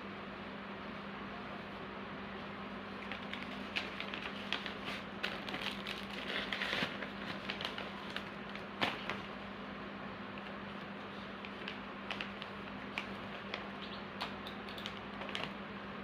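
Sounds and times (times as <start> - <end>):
steady low hum: 0.0 - 16.0
packaging rustling: 3.0 - 9.3, 11.4 - 15.6.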